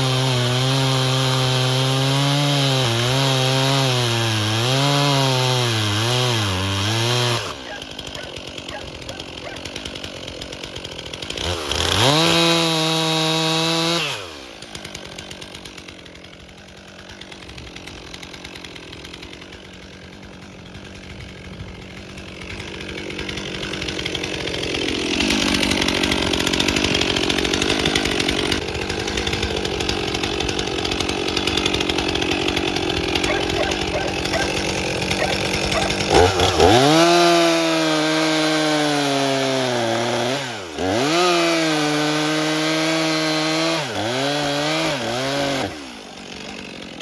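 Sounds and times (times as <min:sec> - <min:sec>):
chainsaw cutting log: 0:00.0 - 0:47.0
chainsaw idling and revving: 0:00.0 - 0:47.0.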